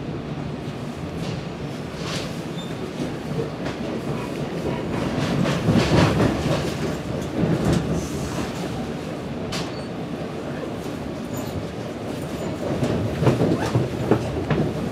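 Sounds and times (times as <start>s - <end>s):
train wheels rumbling on rails: 0.0s - 14.9s
clicks of train wheels: 2.0s - 8.8s, 9.4s - 10.0s, 11.3s - 14.9s.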